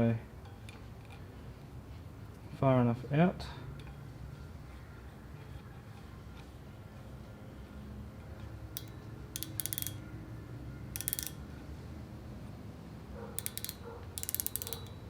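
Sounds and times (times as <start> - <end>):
micrometer ratchet clicking: 8.8 - 10.2, 10.8 - 11.6, 13.4 - 15.0.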